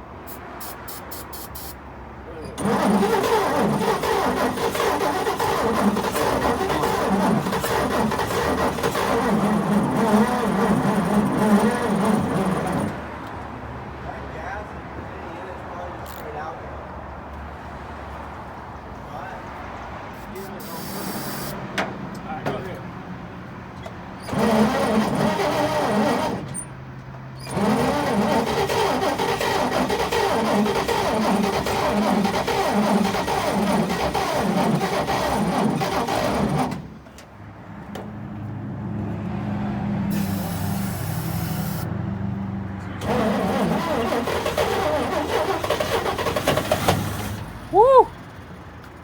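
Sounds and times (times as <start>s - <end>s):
engine cranking on starter: 2.5s - 13.2s, 23.8s - 26.8s, 27.4s - 37.1s, 43.0s - 48.4s.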